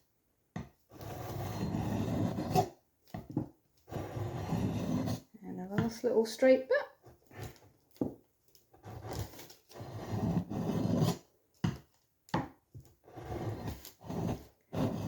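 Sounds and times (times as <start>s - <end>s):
oilstone scraping blade edge: 8.8s - 11.2s.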